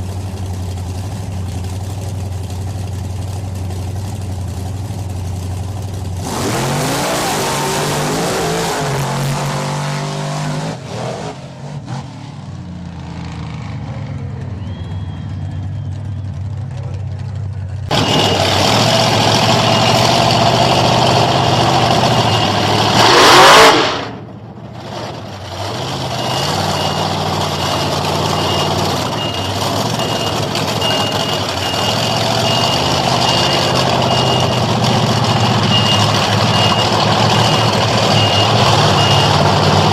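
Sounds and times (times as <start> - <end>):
monster truck engine revving: 0.0 - 39.9
vehicle reversing beeper: 14.4 - 16.6, 17.9 - 23.5, 26.0 - 39.9.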